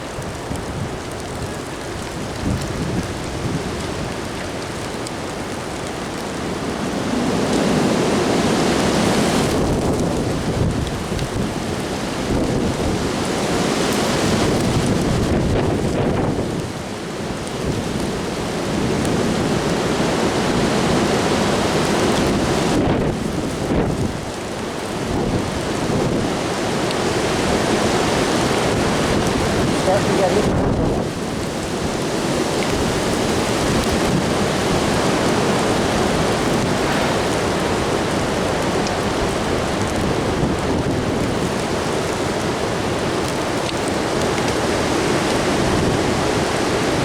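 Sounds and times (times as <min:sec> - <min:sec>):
gusty wind buffeting microphone: 0:06.7 - 0:16.8, 0:20.4 - 0:26.5, 0:27.2 - 0:42.2.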